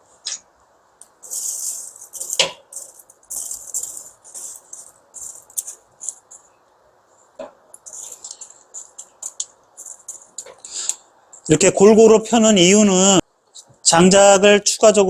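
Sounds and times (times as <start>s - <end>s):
embers scraping and rattling: 1.2s - 6.5s, 7.8s - 10.7s.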